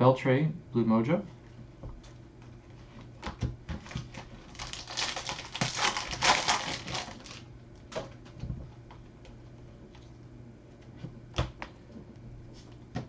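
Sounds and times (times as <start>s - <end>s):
foil wrapper tearing and crinkling: 4.0s - 7.4s.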